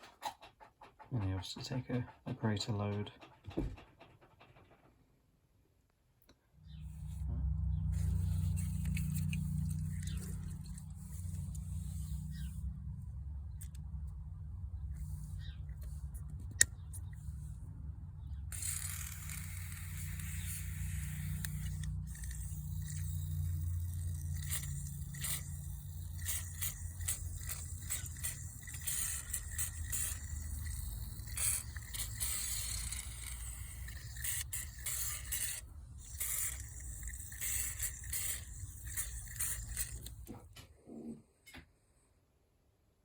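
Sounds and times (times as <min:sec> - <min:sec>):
steady low hum: 0:06.2 - 0:41.5
scraping and scrubbing parts: 0:06.8 - 0:14.1, 0:18.5 - 0:40.6.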